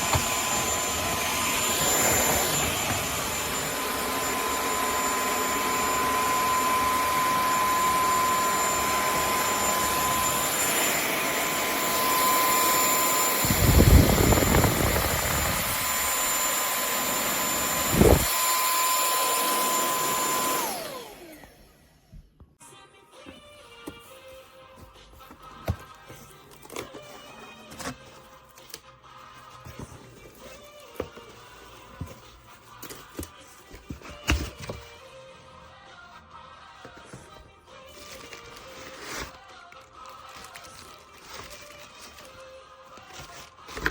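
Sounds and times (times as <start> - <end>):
vacuum cleaner running: 0.0 - 22.3.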